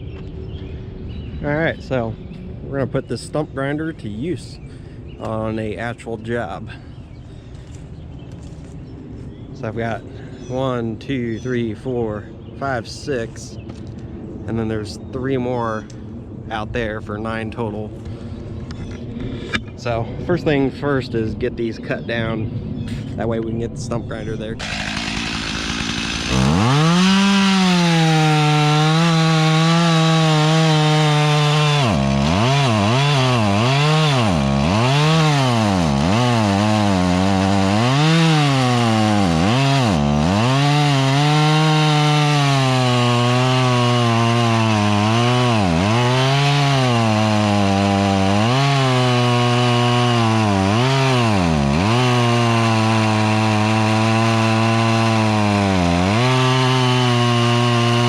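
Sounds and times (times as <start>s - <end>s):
chainsaw cutting wood: 24.6s - 58.0s.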